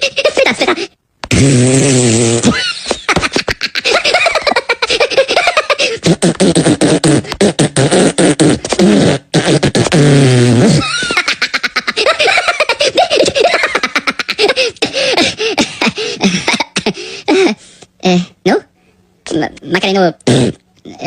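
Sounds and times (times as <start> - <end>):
mouth clicks: 1.2 - 2.5, 6.0 - 10.7.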